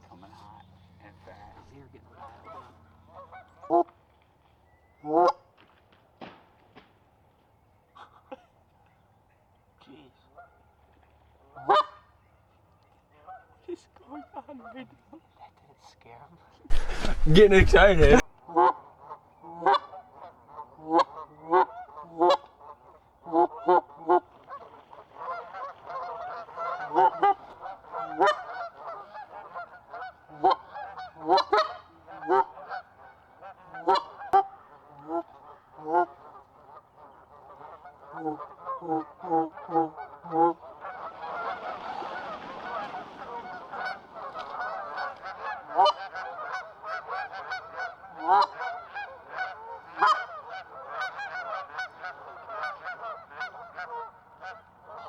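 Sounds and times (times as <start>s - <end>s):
geese honking: 0.1s - 4.0s, 5.0s - 5.4s, 11.5s - 12.1s, 16.7s - 55.0s.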